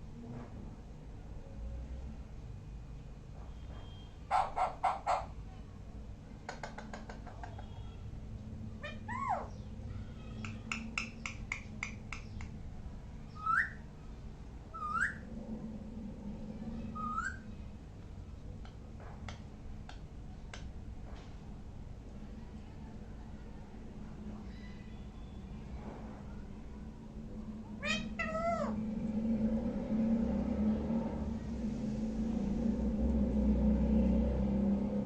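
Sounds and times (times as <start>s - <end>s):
parrot clicking: 10.4s - 12.6s
parrot whistling: 13.3s - 13.8s, 14.8s - 15.3s, 17.0s - 17.4s.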